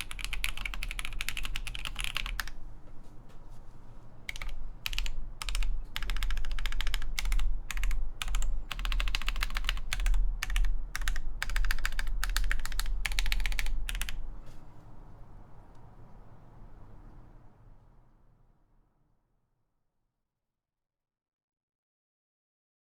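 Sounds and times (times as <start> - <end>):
typing on mechanical keyboard: 0.0 - 2.6, 4.3 - 14.4.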